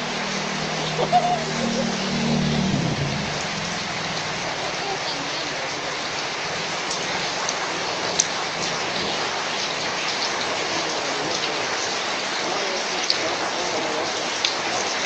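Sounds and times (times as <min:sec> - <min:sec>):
steady rain falling: 0:00.0 - 0:15.0
sharp raindrop ticks: 0:03.2 - 0:15.0.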